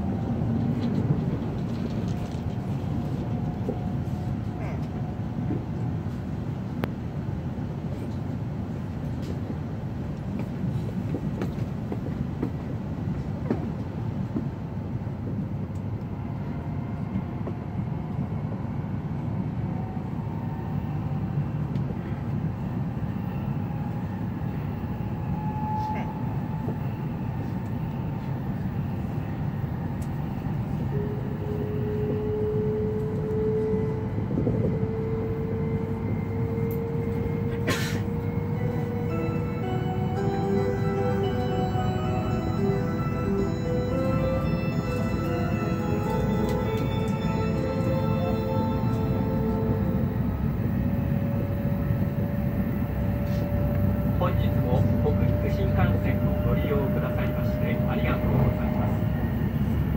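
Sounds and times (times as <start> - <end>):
train cabin low rumble: 0.0 - 59.9
train motor whine rising: 30.9 - 59.9.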